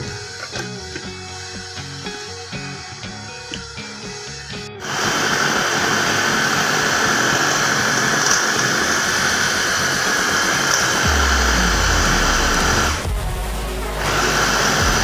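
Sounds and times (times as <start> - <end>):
electric grinder motor running: 4.3 - 13.0.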